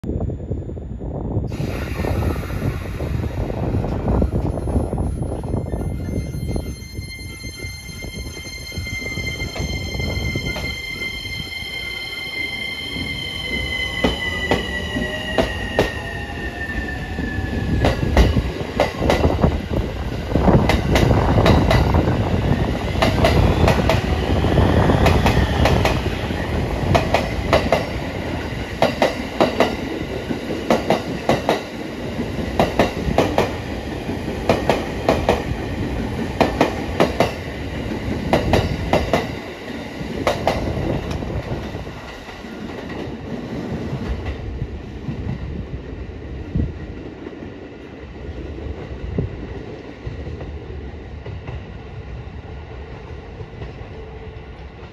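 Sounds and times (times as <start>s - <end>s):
train rumble: 0.2s - 54.9s.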